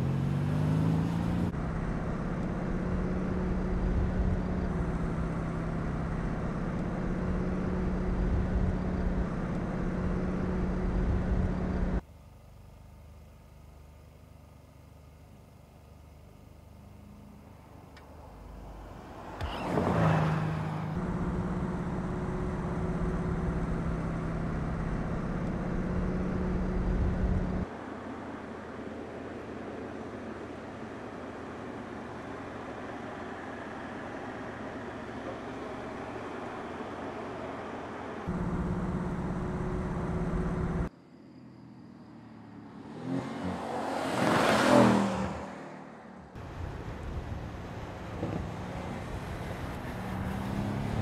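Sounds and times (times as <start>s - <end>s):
steady engine drone: 0.0s - 43.2s
car engine passing by: 18.2s - 21.2s, 42.1s - 51.0s.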